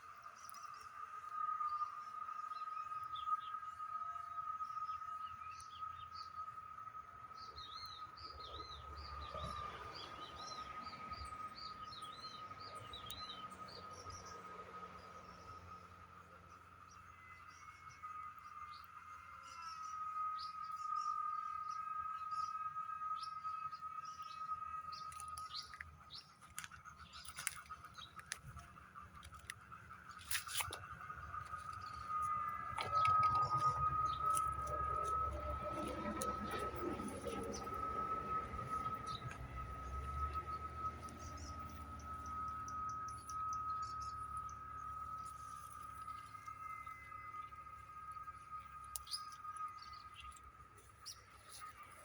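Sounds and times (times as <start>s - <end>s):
bird chirping: 0.0s - 52.0s
steady high whine: 0.0s - 52.0s
steady high-pitched tone: 17.4s - 52.0s
low rumble: 24.9s - 52.0s.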